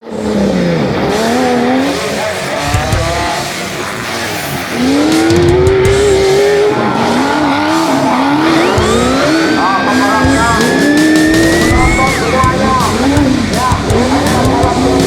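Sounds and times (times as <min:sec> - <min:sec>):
engine revving: 0:00.0 - 0:15.0
low knocks: 0:02.7 - 0:03.4.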